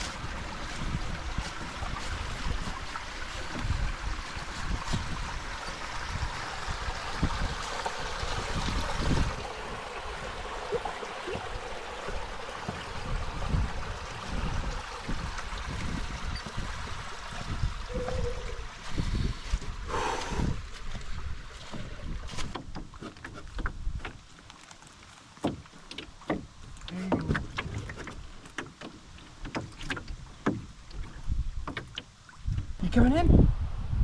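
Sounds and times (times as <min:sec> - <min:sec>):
wind buffeting microphone: 0:00.0 - 0:23.0, 0:32.4 - 0:34.0
water lapping and trickling: 0:00.0 - 0:33.3.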